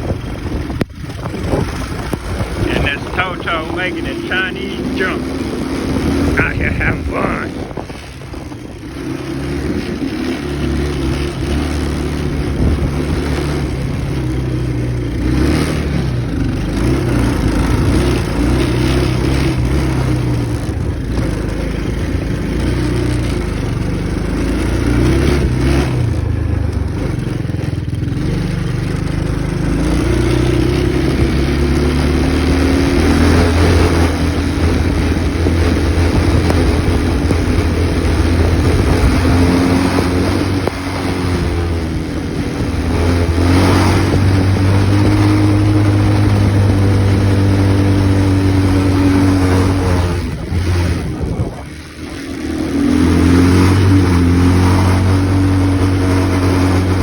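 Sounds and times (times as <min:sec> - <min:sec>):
wind on microphone: 0:00.0 - 0:03.2, 0:33.3 - 0:51.8
small engine revving: 0:00.0 - 0:57.0.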